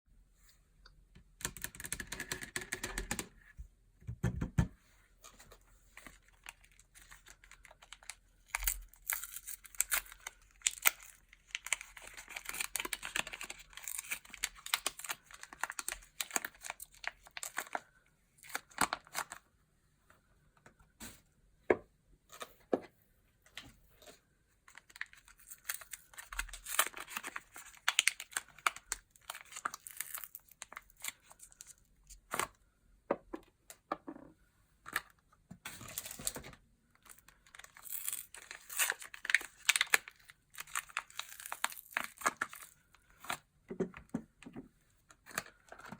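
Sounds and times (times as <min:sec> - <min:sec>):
packaging crinkling and tearing: 0:06.0 - 0:19.4, 0:24.7 - 0:32.4, 0:35.7 - 0:43.4.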